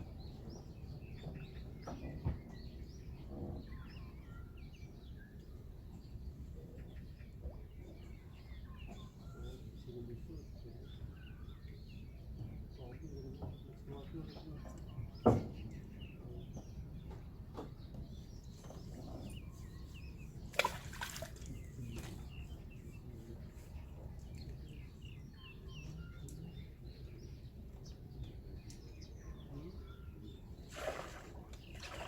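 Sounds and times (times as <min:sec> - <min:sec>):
small birds chirping: 0:00.0 - 0:32.0
splash on water: 0:20.5 - 0:22.2, 0:30.6 - 0:32.0.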